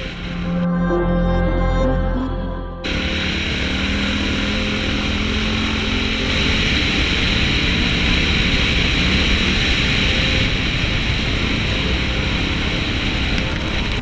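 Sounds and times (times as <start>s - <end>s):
rushing noise: 0.0s - 14.0s
dirt bike engine running: 2.8s - 14.0s.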